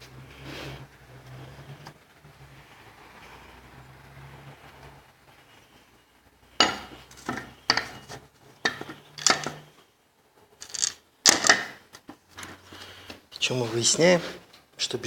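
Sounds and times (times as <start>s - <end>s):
metal tools clinking: 6.6s - 9.7s, 10.6s - 11.7s.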